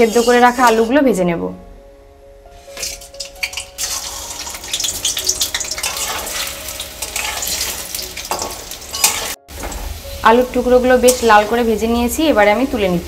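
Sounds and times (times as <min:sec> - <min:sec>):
metal spatula in pan: 0:00.0 - 0:00.9, 0:02.7 - 0:09.9, 0:11.0 - 0:11.5
potatoes sizzling in hot oil: 0:00.0 - 0:00.9, 0:02.9 - 0:13.0.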